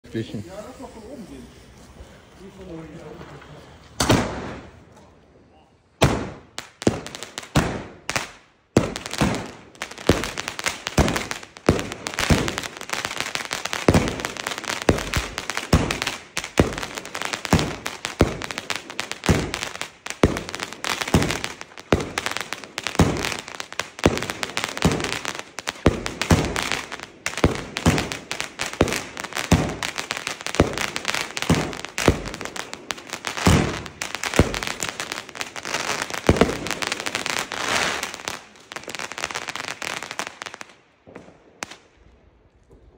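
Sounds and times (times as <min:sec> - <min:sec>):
firework crackling: 0:00.1 - 0:04.9, 0:06.0 - 0:42.9
firework launch thumps and bursts: 0:03.9 - 0:04.8, 0:06.0 - 0:38.1.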